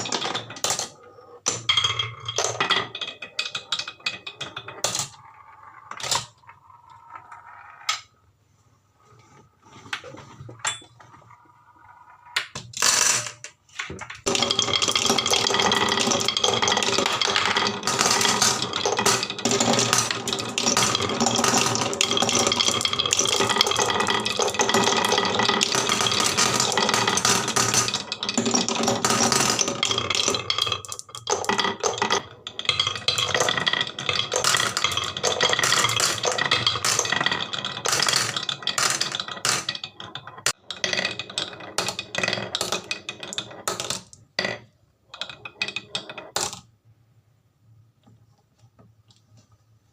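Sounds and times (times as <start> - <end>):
marbles rattling down wooden run: 0.0 - 8.1, 11.7 - 13.6, 14.2 - 46.7.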